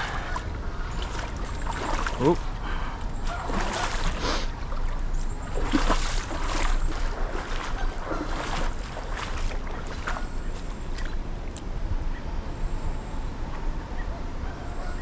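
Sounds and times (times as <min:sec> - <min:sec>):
rushing water: 0:00.0 - 0:11.6
water splashing from wading: 0:00.0 - 0:11.6
wind noise on microphone: 0:00.0 - 0:14.9.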